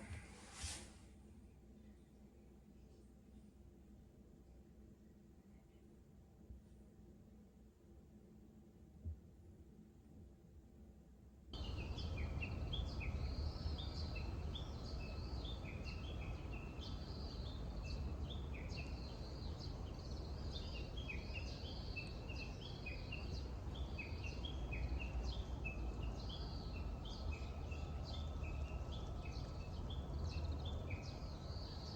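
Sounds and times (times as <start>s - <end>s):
low background rumble: 11.6s - 21.0s
birds chirping: 11.6s - 31.9s.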